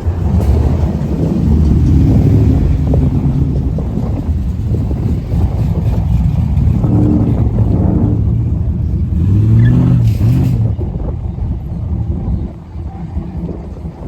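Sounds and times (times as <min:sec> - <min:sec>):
car engine revving: 0:00.0 - 0:11.1.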